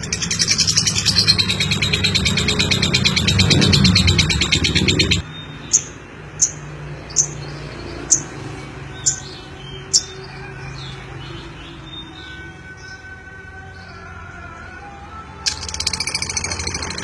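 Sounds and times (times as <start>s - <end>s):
lovebird chirping: 0.0s - 7.5s.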